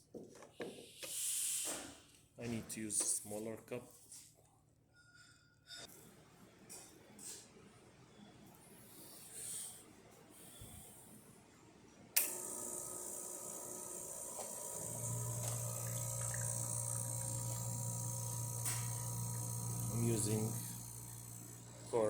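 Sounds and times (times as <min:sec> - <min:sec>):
espresso machine pump humming: 0:12.2 - 0:22.0.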